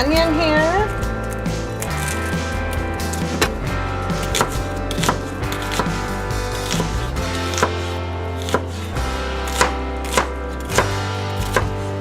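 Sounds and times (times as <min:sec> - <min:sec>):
background music: 0:00.0 - 0:12.0
knife chopping on cutting board: 0:04.2 - 0:11.9.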